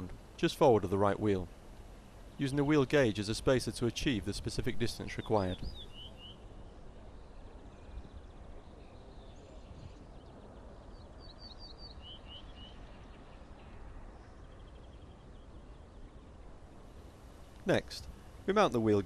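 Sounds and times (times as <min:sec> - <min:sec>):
quiet outdoor background noise: 0:00.0 - 0:19.0
small bird chirping: 0:05.1 - 0:16.0.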